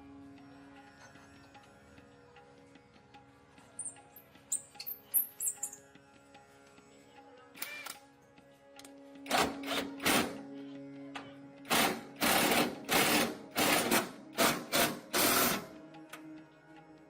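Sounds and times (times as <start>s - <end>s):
quiet background music: 0.0s - 17.0s
workshop tool bursts: 11.7s - 15.7s.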